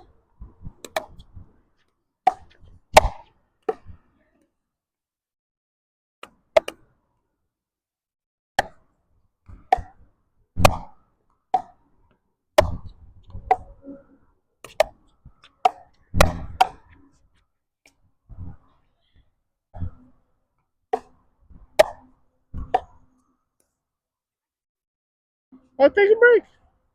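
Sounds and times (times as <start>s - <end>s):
ball hit by rackets: 2.3s - 3.9s.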